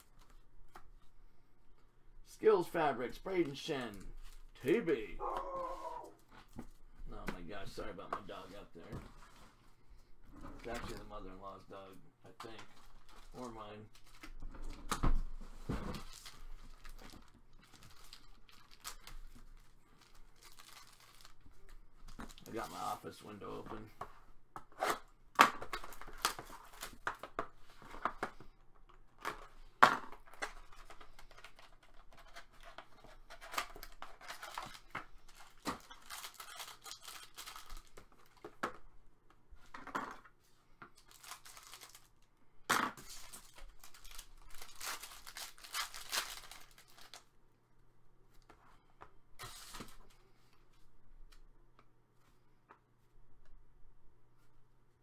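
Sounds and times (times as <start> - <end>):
wrappers tearing and crinkling: 16.0 - 21.5, 33.4 - 38.4, 41.0 - 42.2, 43.0 - 47.3.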